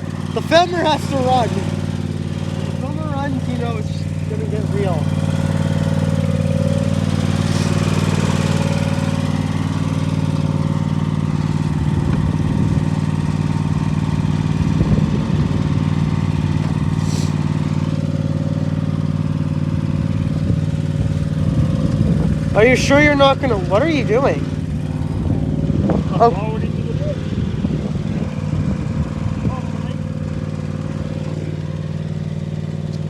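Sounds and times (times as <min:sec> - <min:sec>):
small petrol engine running: 0:00.0 - 0:33.0
short hiss: 0:17.0 - 0:17.4.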